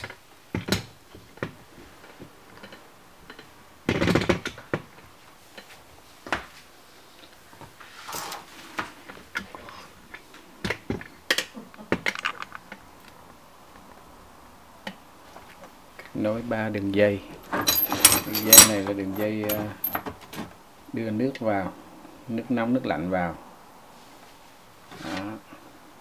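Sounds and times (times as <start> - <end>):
clattering scrape: 17.5 - 20.0.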